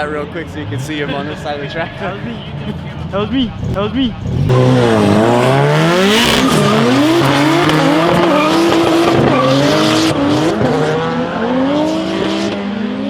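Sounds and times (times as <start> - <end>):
car engine revving: 0.0 - 13.0
tyre squeal: 6.1 - 10.4.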